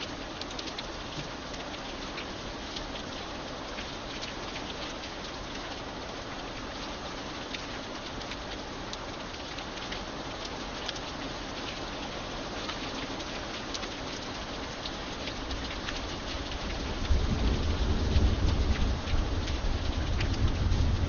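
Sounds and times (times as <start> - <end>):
rain drops ticking on hard surface: 0.0 - 21.0
low rumble of thunder: 16.6 - 21.0.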